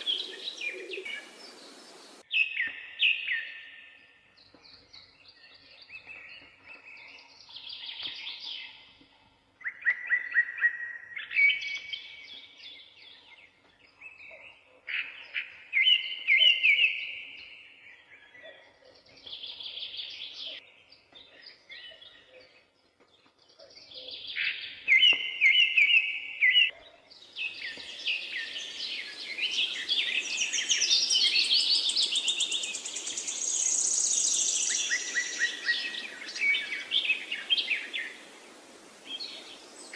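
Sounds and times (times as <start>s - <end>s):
chorus of overlapping birds: 0.0s - 2.2s, 25.6s - 39.9s
songbirds trilling and chirping: 0.0s - 39.9s
steady hiss: 1.1s - 2.2s, 35.9s - 39.9s.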